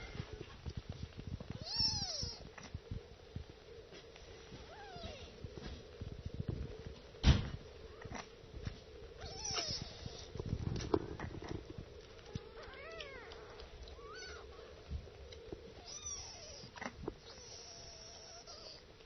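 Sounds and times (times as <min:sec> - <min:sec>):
small rustles and knocks: 0:00.0 - 0:17.4
kittens mewing: 0:01.6 - 0:02.7, 0:09.2 - 0:10.3, 0:12.2 - 0:14.9, 0:15.7 - 0:18.9.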